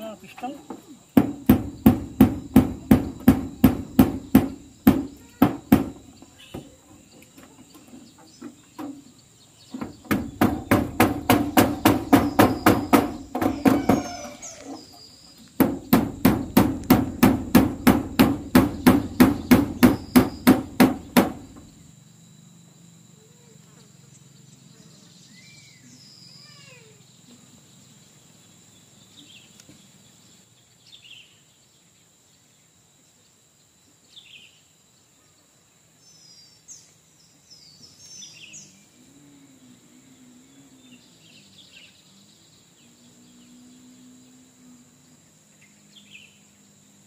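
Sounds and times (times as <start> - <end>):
hammer nailing metal roofing: 1.2 - 6.0, 9.8 - 14.2, 15.6 - 21.7.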